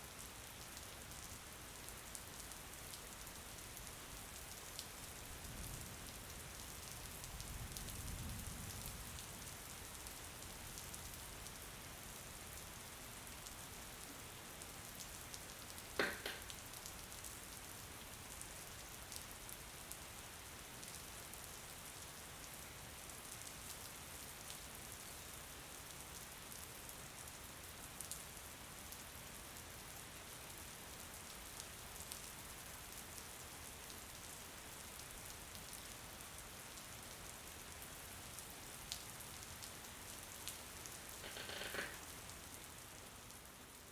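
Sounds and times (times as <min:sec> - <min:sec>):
steady rain: 0:00.0 - 0:43.9
short sharp tap: 0:16.0 - 0:16.5.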